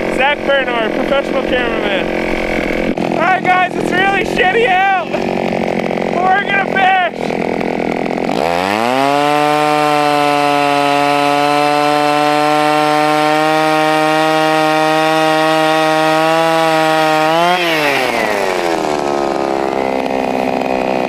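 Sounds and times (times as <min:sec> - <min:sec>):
two-stroke ice auger engine revving: 0:00.0 - 0:21.0.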